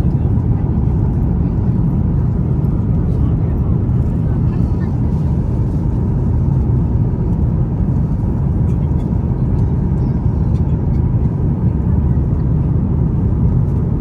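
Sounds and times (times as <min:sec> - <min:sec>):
airplane cabin engine rumble: 0:00.0 - 0:14.0.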